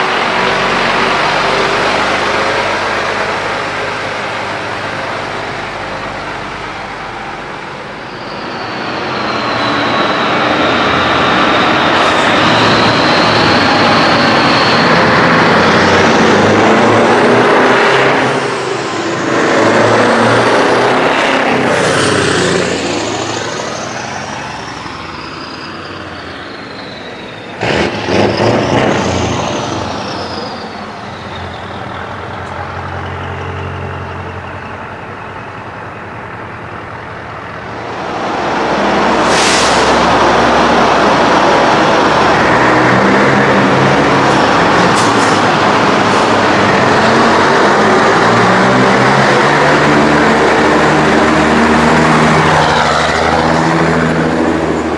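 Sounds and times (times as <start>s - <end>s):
heavy trucks driving past: 0.0s - 54.9s
sudden sharp burst of noise: 37.8s - 42.2s.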